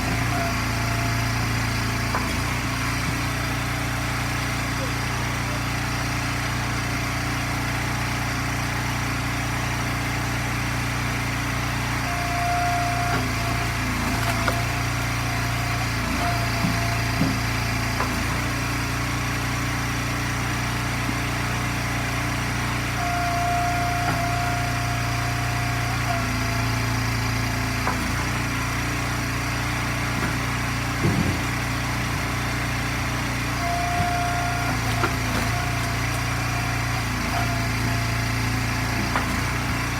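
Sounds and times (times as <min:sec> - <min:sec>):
gas engine running: 0:00.0 - 0:39.9
short knocks and cracks: 0:13.9 - 0:15.2.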